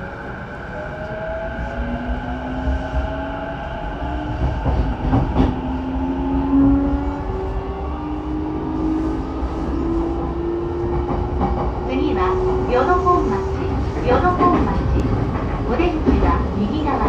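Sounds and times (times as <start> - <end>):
wheels rumbling on rail: 0.0 - 17.0
rail clacks: 4.1 - 7.0, 8.6 - 17.0.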